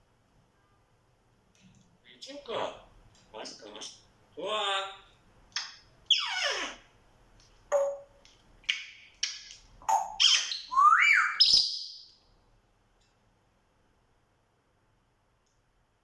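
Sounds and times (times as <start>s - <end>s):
parrot whistling and squawking: 5.6s - 6.8s, 8.7s - 12.1s.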